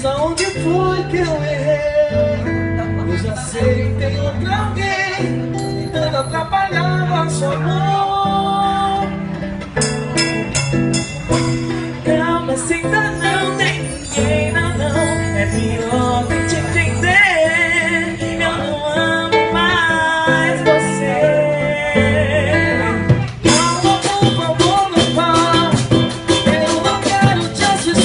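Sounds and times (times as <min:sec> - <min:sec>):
percussion beat: 0:09.6 - 0:17.4, 0:23.0 - 0:28.0
samba band playing: 0:22.9 - 0:28.0.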